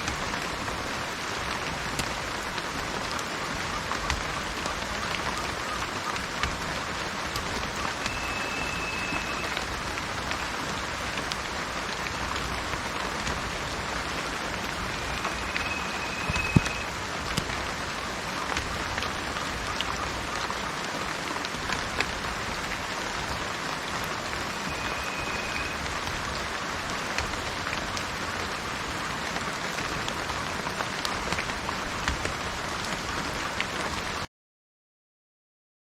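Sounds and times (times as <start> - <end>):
rain falling on garden: 0.0 - 34.3
high whistle-like tone: 7.8 - 9.6, 14.8 - 16.9, 24.5 - 25.8.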